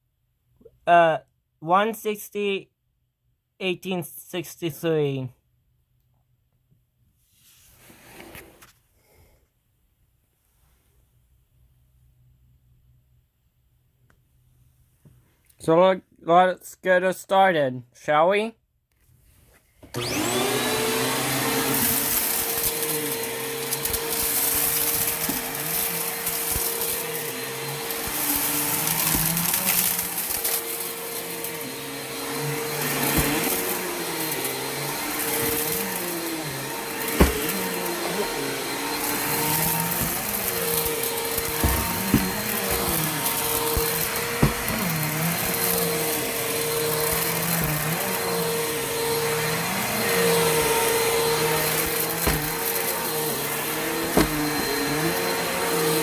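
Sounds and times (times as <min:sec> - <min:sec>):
vacuum cleaner motor whine: 0:19.9 - 0:56.0.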